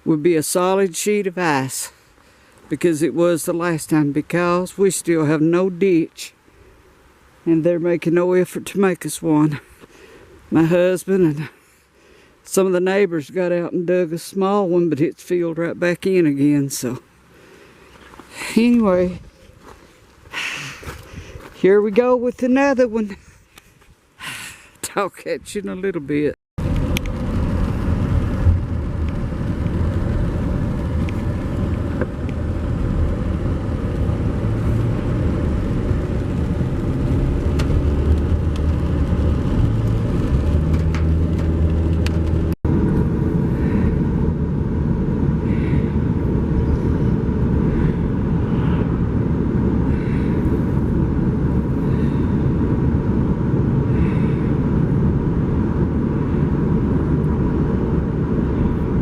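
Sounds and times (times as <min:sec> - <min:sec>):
car engine and road rumble: 0:26.0 - 0:59.0.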